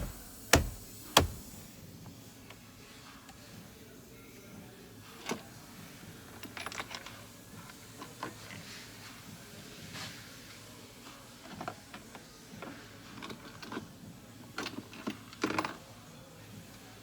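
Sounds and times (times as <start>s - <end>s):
parts clattering: 0.0s - 1.6s.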